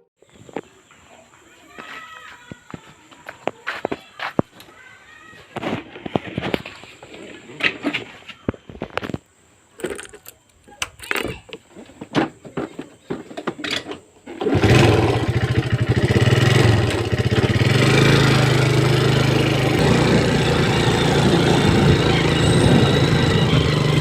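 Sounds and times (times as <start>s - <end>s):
vehicle engine starting and running: 14.3s - 24.0s.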